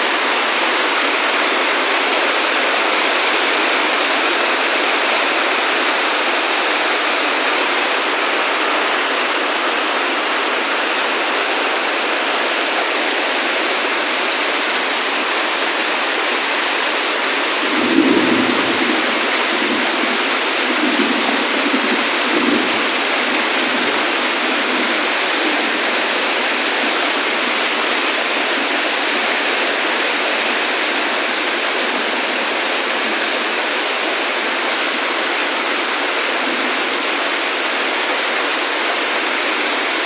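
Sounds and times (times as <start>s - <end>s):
heavy rain falling: 0.0s - 40.0s
low rumble: 17.5s - 25.3s.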